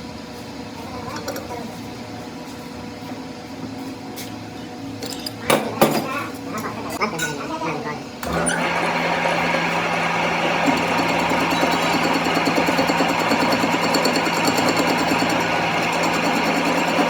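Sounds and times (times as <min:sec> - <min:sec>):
machine tool humming: 0:08.2 - 0:17.0.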